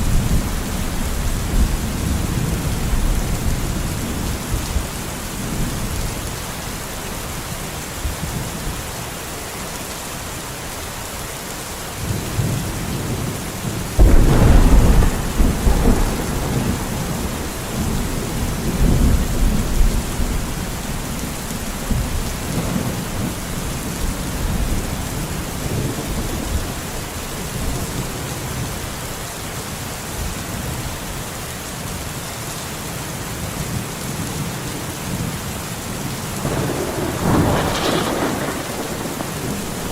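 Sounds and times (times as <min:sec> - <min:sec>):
steady rain falling: 0:00.0 - 0:39.9
thunderclap rumbling: 0:12.4 - 0:28.6, 0:36.4 - 0:39.9.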